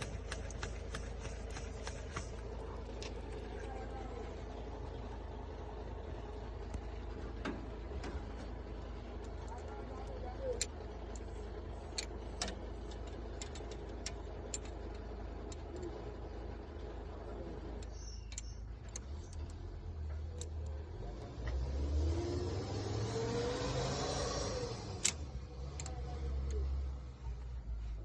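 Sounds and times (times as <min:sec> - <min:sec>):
sharp clicks: 0:00.0 - 0:03.2
diesel generator humming: 0:00.0 - 0:28.0.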